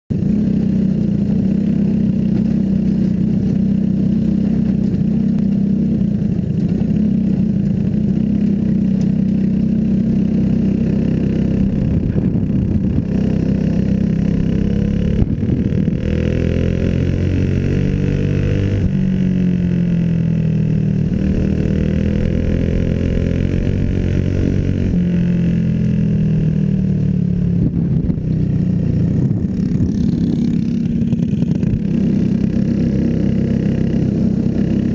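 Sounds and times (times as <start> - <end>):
small racing engines revving: 9.8 - 19.1, 20.9 - 25.7, 29.2 - 34.9.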